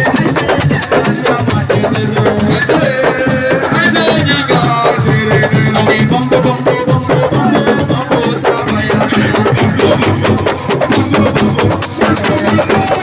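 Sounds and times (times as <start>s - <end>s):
fast drum percussion: 0.0s - 13.0s.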